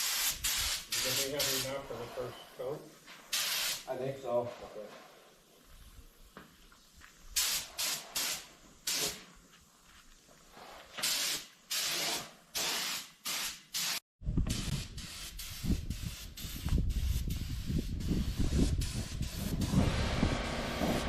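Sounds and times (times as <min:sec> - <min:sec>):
spray gun hissing bursts: 0:00.0 - 0:02.3, 0:03.3 - 0:03.9, 0:07.4 - 0:09.3, 0:11.0 - 0:14.0.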